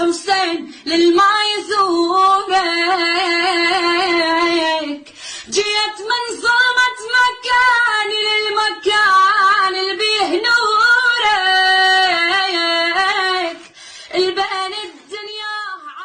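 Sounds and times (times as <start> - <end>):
woman singing a lament: 0.0 - 16.0.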